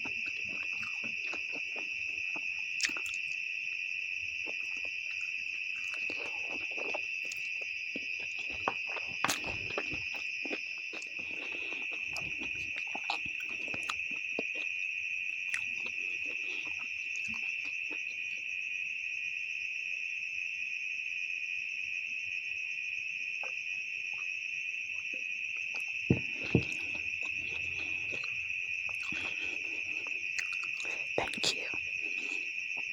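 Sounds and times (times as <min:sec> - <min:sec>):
chewing and slurping noodles: 0:00.0 - 0:03.4, 0:04.4 - 0:14.7, 0:15.5 - 0:18.1, 0:25.7 - 0:32.9
crickets trilling: 0:00.0 - 0:32.9.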